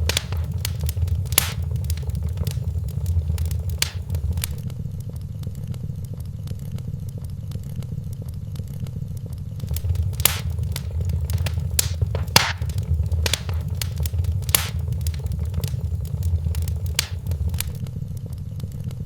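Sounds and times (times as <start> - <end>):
low rumble: 0.0 - 4.6, 9.6 - 17.8
wood fire crackling and popping: 0.0 - 4.6, 9.6 - 17.8.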